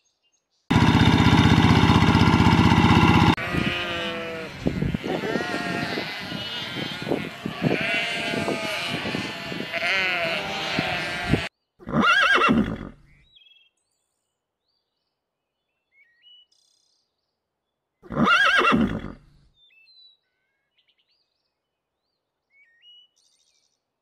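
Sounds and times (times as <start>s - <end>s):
sheep bleating: 0.7s - 12.1s
horse whinnying: 3.2s - 13.1s, 18.1s - 19.4s.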